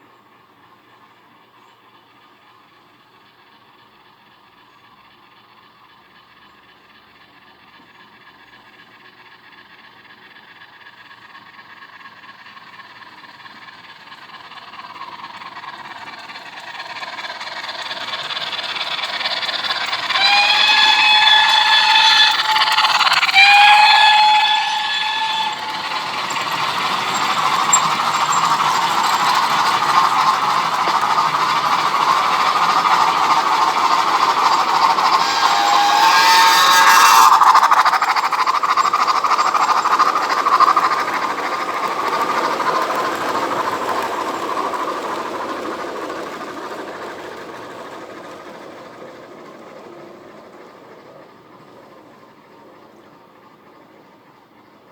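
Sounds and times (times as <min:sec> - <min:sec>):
steam train running: 0:00.0 - 0:54.9
steam train whistle blasts: 0:18.4 - 0:39.9.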